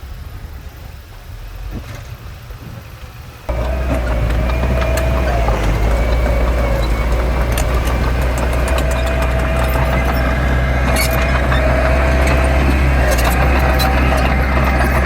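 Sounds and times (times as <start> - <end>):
diesel engine droning: 3.5 - 15.0
light clicks and knocks: 3.5 - 15.0.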